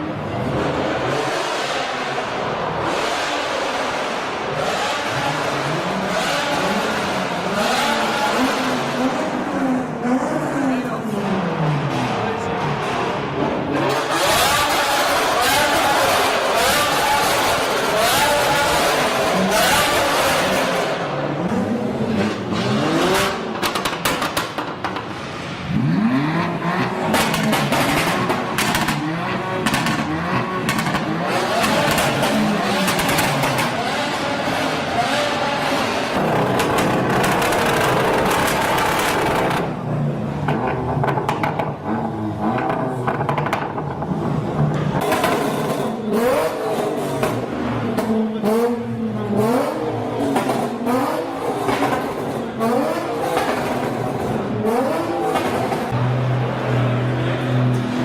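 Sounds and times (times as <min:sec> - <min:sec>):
car engine revving: 0:00.0 - 0:58.0
exhaust cracks: 0:21.5 - 0:34.9, 0:35.8 - 0:46.0.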